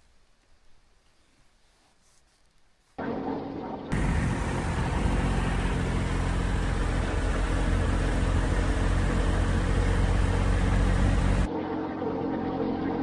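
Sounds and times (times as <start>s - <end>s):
motorcycle engine running: 3.9s - 11.5s.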